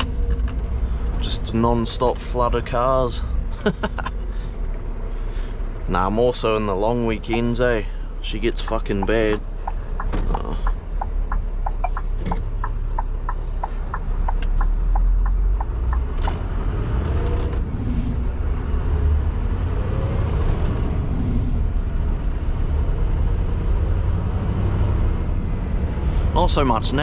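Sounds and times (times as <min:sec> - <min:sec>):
truck engine rumble: 0:00.0 - 0:27.0
indicator ticking: 0:07.2 - 0:07.6, 0:08.7 - 0:16.0.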